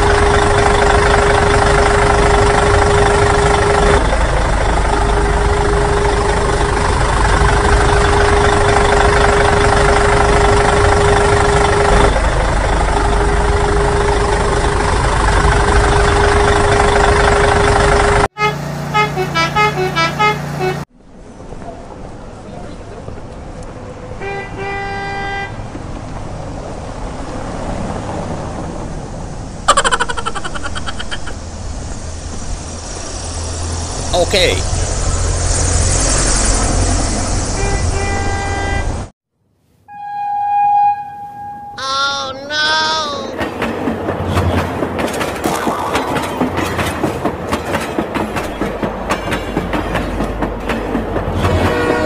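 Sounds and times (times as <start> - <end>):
wind: 0.0 - 52.0.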